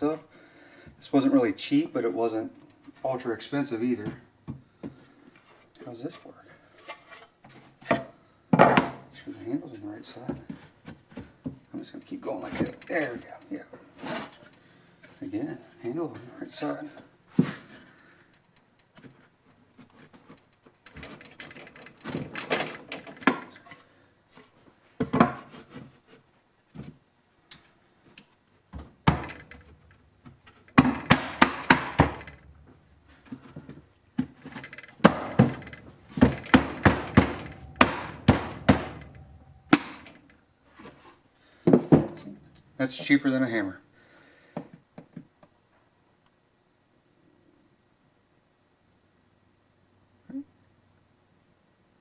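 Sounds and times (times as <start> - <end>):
rapid sharp knocks on wood: 29.0 - 29.6, 30.8 - 32.4, 35.0 - 40.2
wood rubbing and scraping: 29.1 - 41.1.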